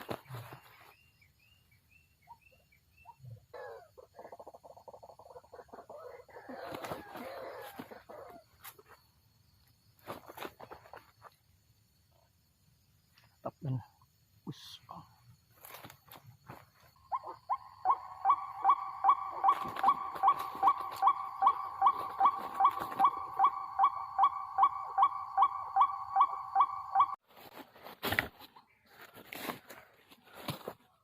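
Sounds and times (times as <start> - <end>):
bird croaking calls: 3.0 - 8.4, 16.9 - 27.2.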